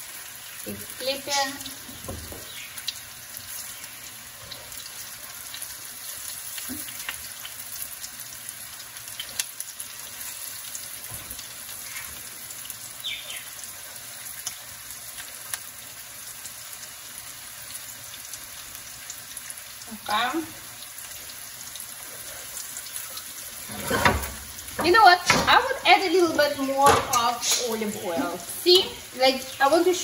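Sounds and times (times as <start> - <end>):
food frying in oil: 0.0 - 30.0.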